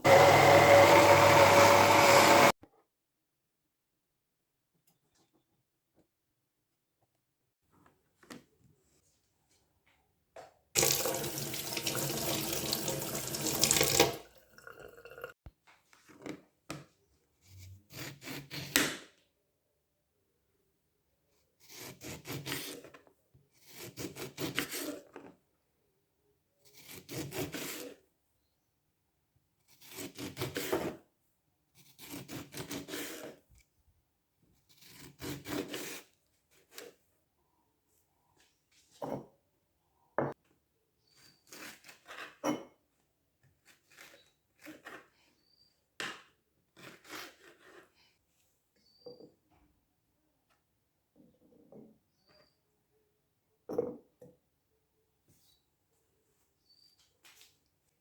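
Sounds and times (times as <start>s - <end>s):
tap water running: 10.8s - 15.3s.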